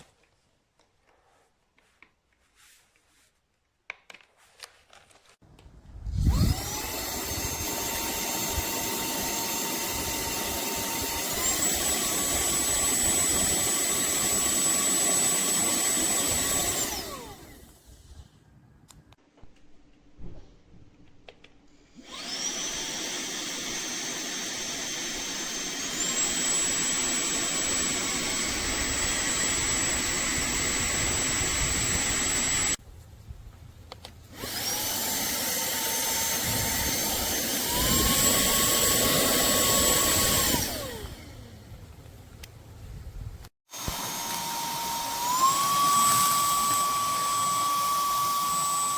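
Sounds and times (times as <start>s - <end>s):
handheld vacuum motor whining: 6.2s - 17.8s, 21.9s - 32.8s, 34.3s - 41.6s, 43.7s - 48.9s.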